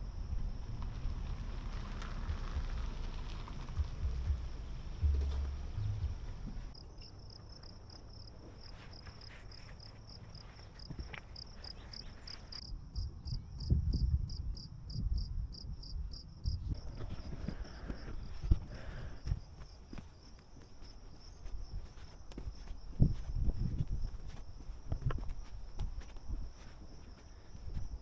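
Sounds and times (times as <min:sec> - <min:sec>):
insect chirping: 0:00.0 - 0:28.0
low rumbles and knocks: 0:00.6 - 0:06.8.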